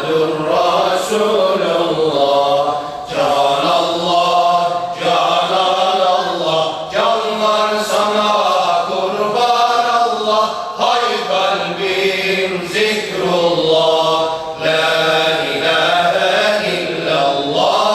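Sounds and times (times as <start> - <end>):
group chanting in unison: 0.0 - 17.9.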